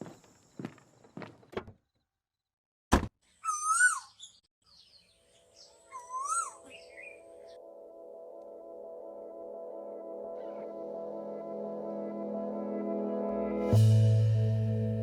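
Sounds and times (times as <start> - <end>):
sharp thunk: 2.9 - 3.2
bird-like chirping calls: 3.3 - 7.6
steady music: 7.2 - 15.0.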